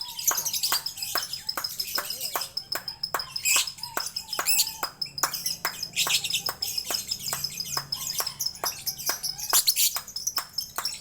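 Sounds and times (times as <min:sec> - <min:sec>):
songbird chirping rapidly: 0:00.0 - 0:11.0.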